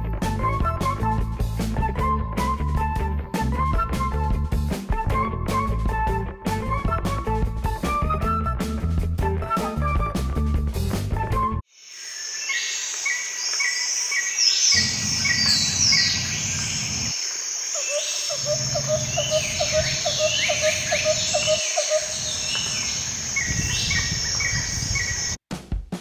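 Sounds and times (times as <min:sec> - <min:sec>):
birds chirping and singing: 0:12.5 - 0:17.2, 0:17.8 - 0:25.4.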